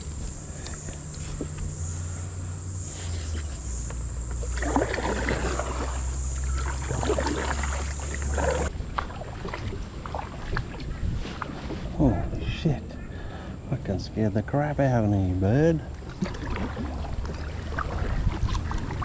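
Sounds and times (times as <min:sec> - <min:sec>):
kayak paddle splashing water: 0:00.0 - 0:12.0, 0:15.8 - 0:19.0.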